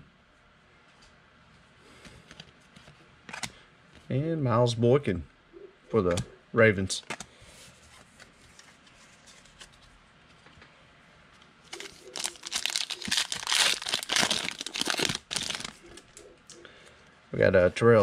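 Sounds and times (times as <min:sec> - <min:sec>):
foil wrapper tearing and crinkling: 0:11.7 - 0:15.8.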